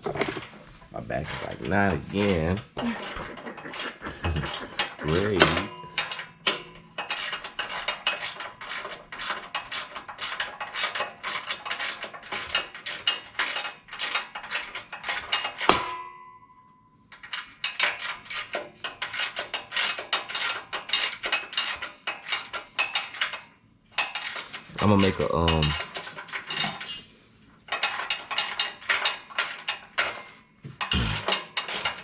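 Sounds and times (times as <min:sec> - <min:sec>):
metallic clicking of hand tools: 0:01.2 - 0:16.0, 0:17.1 - 0:26.9, 0:27.7 - 0:32.0
loud ringing metal clang: 0:05.4 - 0:06.9, 0:15.6 - 0:16.7.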